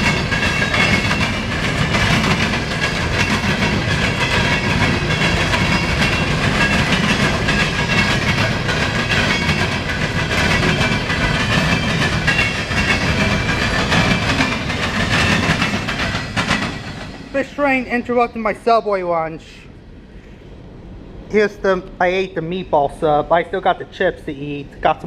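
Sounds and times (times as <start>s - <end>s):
wheels clicking over rail joints: 0.0s - 17.6s
train wheels rumbling on rail: 0.0s - 19.0s.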